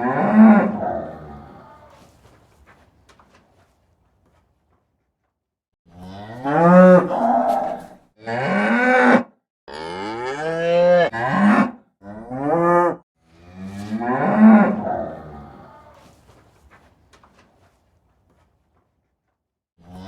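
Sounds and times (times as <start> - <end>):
cows mooing: 0.0 - 2.0, 5.9 - 16.1.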